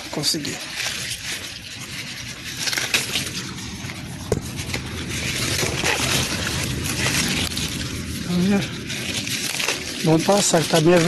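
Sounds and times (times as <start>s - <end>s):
corn leaves rustling: 0.0s - 11.0s
plant stalks snapping: 2.6s - 3.6s, 4.3s - 11.0s.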